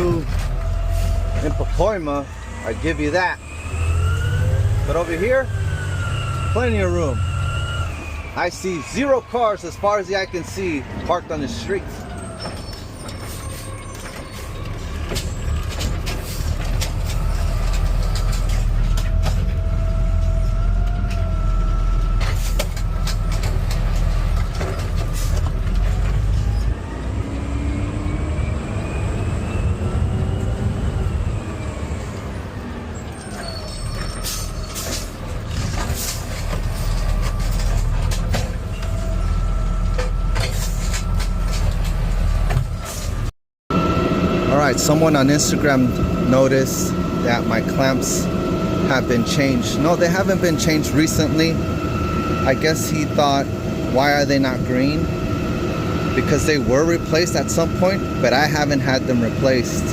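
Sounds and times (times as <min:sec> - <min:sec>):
truck cab low rumble: 0:04.4 - 0:59.9
rising and falling whine: 0:26.3 - 0:32.7, 0:43.7 - 0:59.9.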